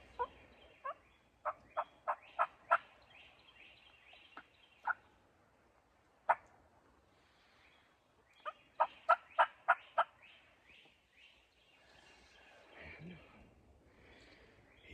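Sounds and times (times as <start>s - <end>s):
turkey yelping: 0.0s - 2.8s, 8.4s - 10.1s
small birds chirping: 0.0s - 5.3s, 7.1s - 14.9s.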